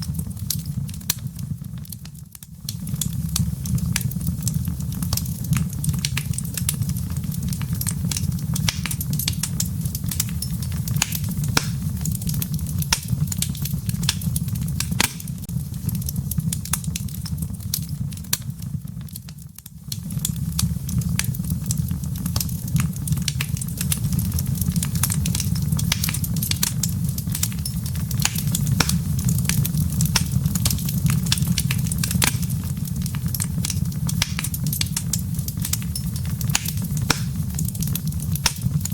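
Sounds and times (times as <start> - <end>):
embers crackling and popping: 0.0 - 38.9
wood fire rumbling: 0.0 - 38.9.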